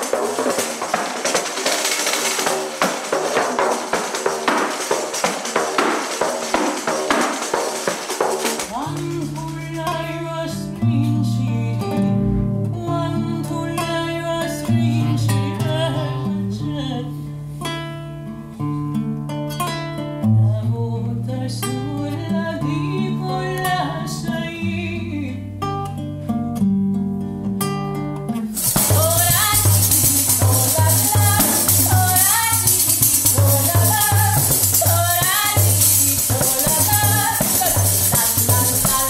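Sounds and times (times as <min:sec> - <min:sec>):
acoustic guitar plucking: 0:00.0 - 0:39.0
low bass notes: 0:11.8 - 0:12.9.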